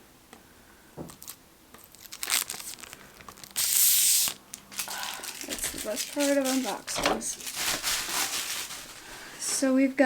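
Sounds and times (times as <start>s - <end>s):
packaging crinkling: 1.1s - 9.5s
packaging tearing rip: 1.2s - 9.0s.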